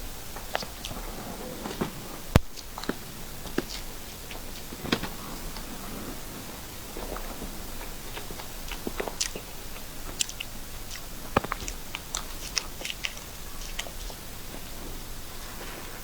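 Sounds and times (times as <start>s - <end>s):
person chewing cake: 8.0s - 14.8s
wet mouth clicks: 8.7s - 14.2s.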